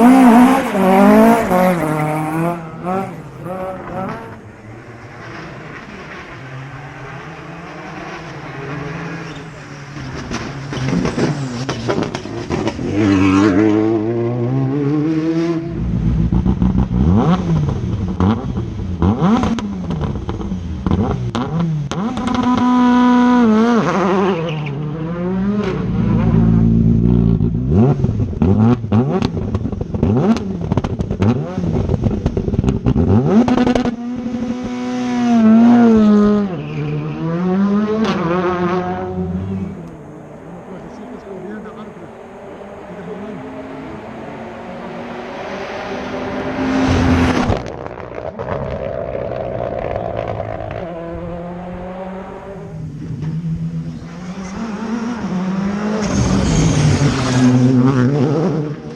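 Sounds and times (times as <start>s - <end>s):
rally car engine revving: 0.0s - 58.9s
exhaust cracks and pops: 47.3s - 50.8s.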